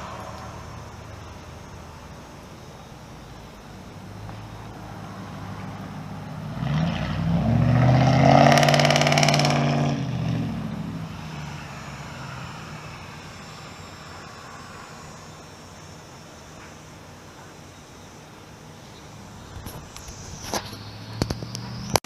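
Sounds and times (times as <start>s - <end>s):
motor vehicle driving past: 0.0s - 2.1s, 4.2s - 15.8s, 19.6s - 22.0s.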